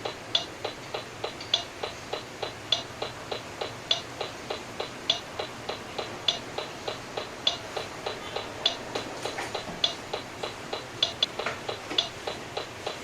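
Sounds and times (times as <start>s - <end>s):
metronome ticking: 0.0s - 13.0s.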